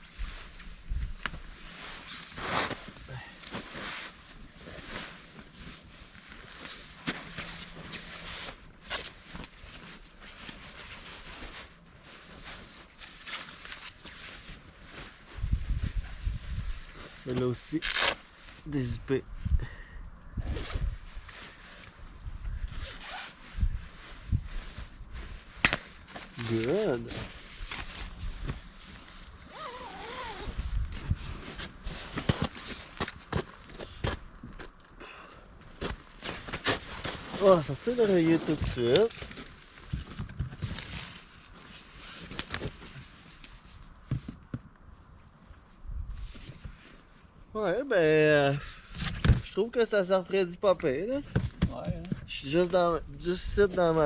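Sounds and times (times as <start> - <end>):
sleeping bags rustling: 0.0 - 19.1, 20.3 - 54.0
fabric rustling: 20.5 - 33.7
campfire pops and crackles: 25.6 - 25.9
zipper being drawn: 29.5 - 30.6.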